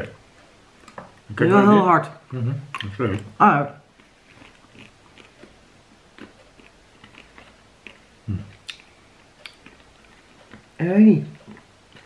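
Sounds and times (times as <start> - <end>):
mouth clicks: 6.2 - 10.6.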